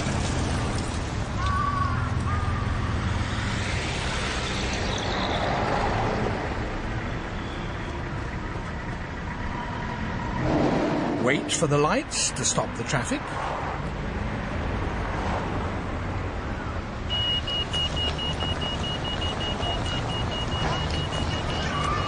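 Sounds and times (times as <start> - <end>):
vehicle engines running: 0.0 - 22.0
vehicle passing by: 9.8 - 12.4.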